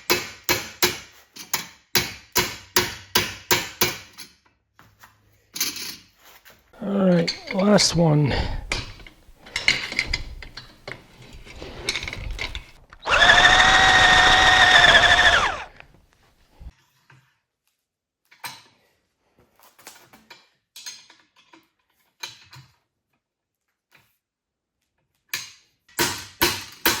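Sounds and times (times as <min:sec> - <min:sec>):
electric drill whining: 0:11.6 - 0:16.0.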